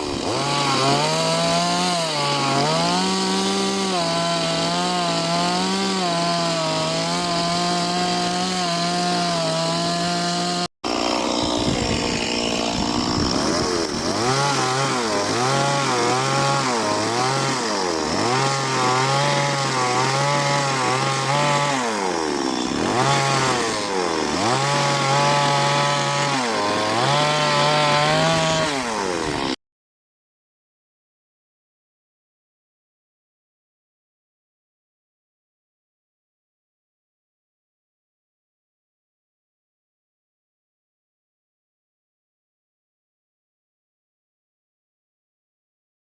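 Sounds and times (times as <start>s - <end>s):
chainsaw cutting wood: 0.0s - 29.6s.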